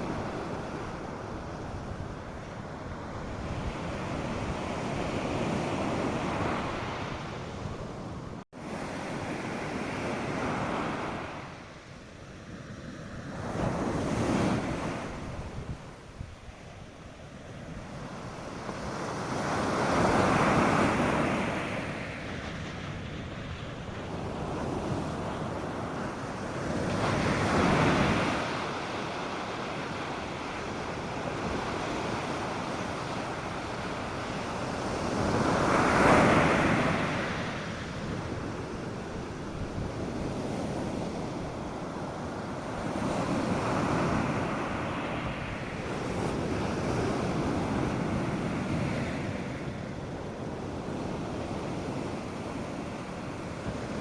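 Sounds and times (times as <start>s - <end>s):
waves breaking on sandy beach: 0.0s - 54.0s
wind buffeting microphone: 12.5s - 54.0s.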